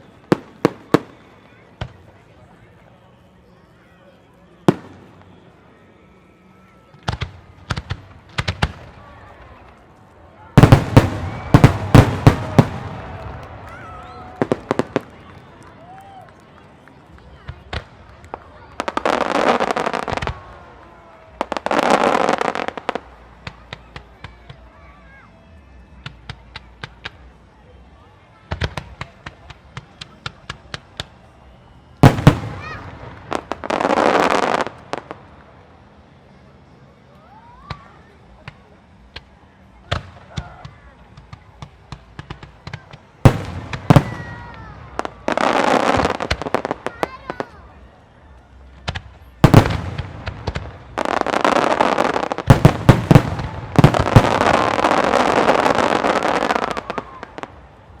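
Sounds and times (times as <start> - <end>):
firework crackling: 6.7 - 25.0, 28.5 - 58.0
firework booms: 10.6 - 15.2, 32.0 - 34.8, 43.2 - 46.7, 48.9 - 57.3
firework pops: 48.8 - 57.2.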